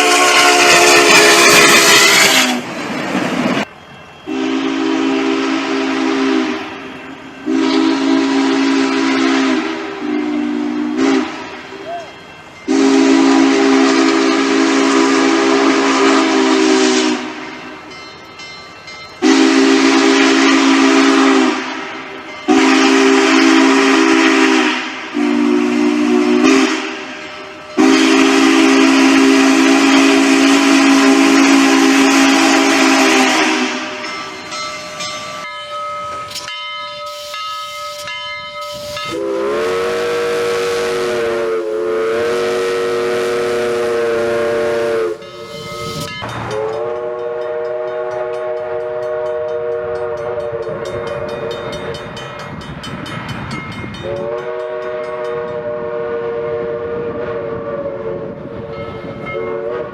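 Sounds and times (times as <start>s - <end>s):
steam locomotive chime whistle: 0.0s - 2.7s, 3.6s - 59.9s
steam hissing: 0.0s - 3.7s, 19.2s - 52.2s.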